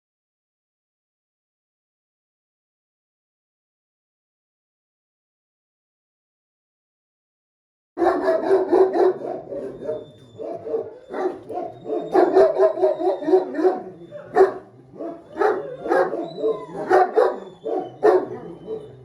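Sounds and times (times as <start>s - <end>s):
dog barking and grumbling: 8.0s - 19.0s.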